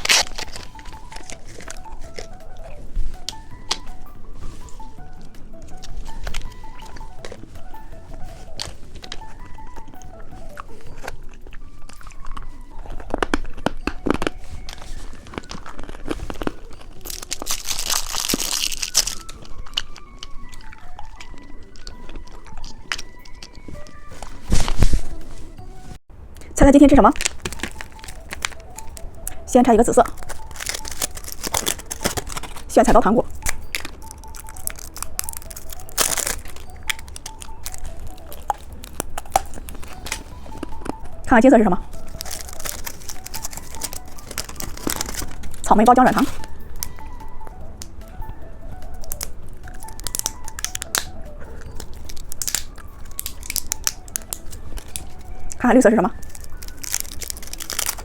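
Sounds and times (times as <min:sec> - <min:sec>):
plastic tearing rip: 0:00.0 - 0:02.4, 0:30.1 - 0:32.7, 0:41.9 - 0:45.6, 0:51.7 - 0:55.2, 0:56.2 - 0:58.0
candy clicking and crunching: 0:00.0 - 0:25.7, 0:26.3 - 0:58.0
plastic wrapper crinkling: 0:00.0 - 0:58.0.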